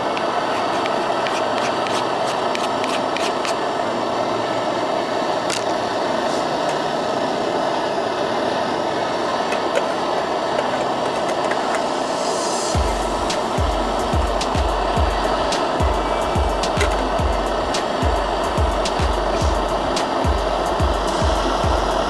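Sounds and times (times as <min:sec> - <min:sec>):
camp stove rushing hiss: 0:00.0 - 0:22.0.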